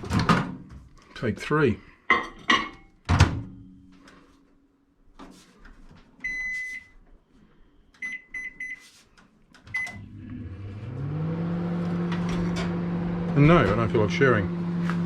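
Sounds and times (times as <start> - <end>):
keypad beeps: 6.2 - 6.9, 8.0 - 8.8, 9.7 - 10.0
microwave oven humming: 9.6 - 15.0.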